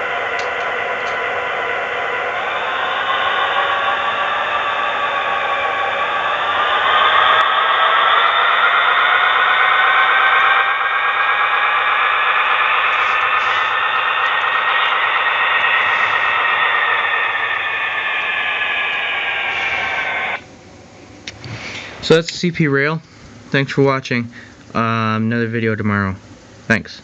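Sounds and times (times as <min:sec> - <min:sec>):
model train motor whining: 0:00.0 - 0:20.4.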